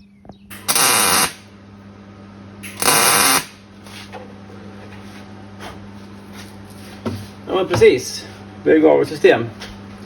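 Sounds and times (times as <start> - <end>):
steady low hum: 0.0 - 10.0
workshop tool bursts: 0.5 - 1.4, 2.6 - 3.6.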